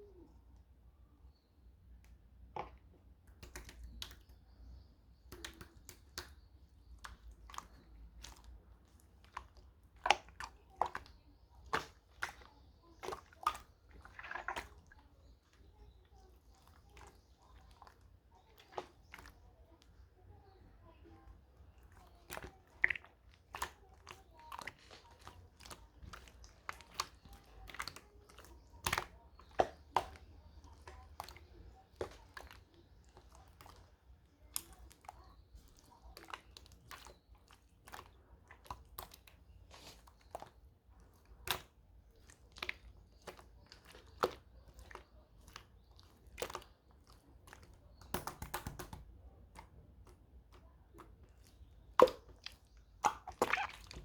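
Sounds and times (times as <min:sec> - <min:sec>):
slime crackling: 0:05.3 - 0:54.0
slime clicking and popping: 0:48.0 - 0:50.2.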